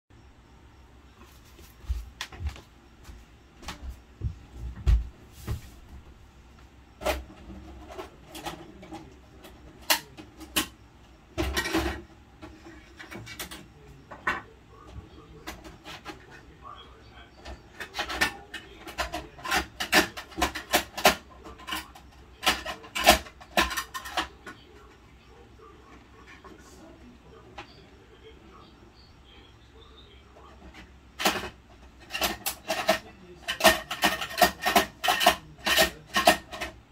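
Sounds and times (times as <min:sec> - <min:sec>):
plastic toy clicks and knocks: 0:17.7 - 0:24.6, 0:30.6 - 0:36.8.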